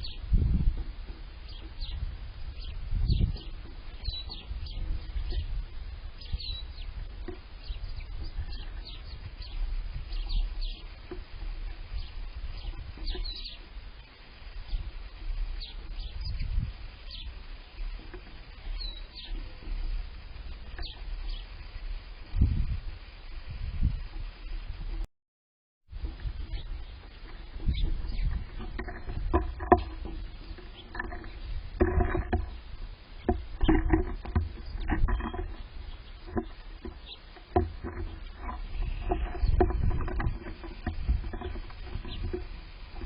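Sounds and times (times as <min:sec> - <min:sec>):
songbirds chirping: 0:00.0 - 0:23.5, 0:25.9 - 0:43.0
low constant rumble: 0:00.0 - 0:25.1, 0:25.9 - 0:43.0.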